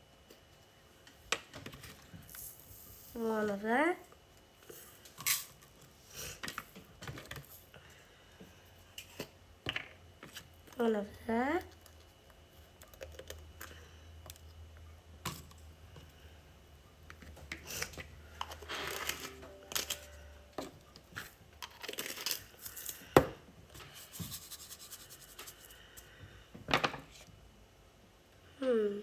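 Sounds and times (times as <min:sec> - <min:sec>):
packaging crinkling and tearing: 0:21.6 - 0:23.0.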